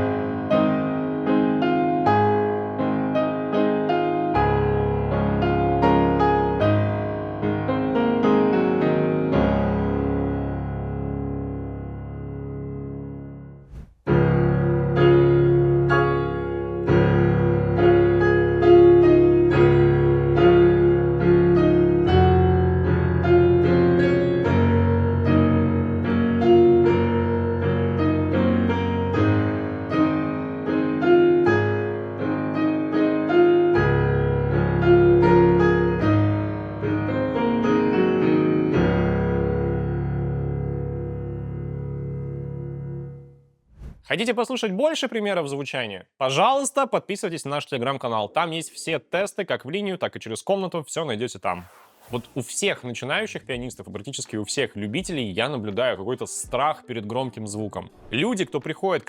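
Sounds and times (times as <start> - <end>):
digital piano playing: 0.0 - 43.4.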